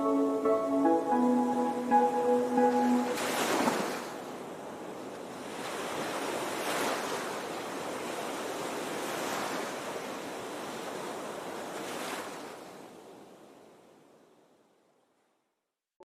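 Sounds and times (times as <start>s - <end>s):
sea waves washing onto shore: 2.7s - 12.6s.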